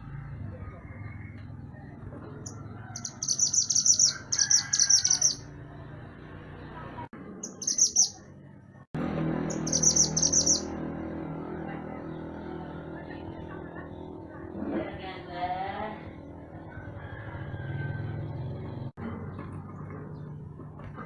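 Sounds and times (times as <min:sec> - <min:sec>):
songbird chattering song: 0:00.9 - 0:05.5, 0:07.4 - 0:08.3, 0:09.5 - 0:10.7.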